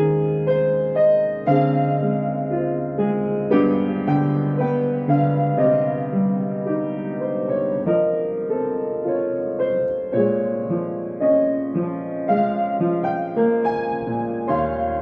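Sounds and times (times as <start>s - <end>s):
slow gentle piano piece: 0.0s - 15.0s.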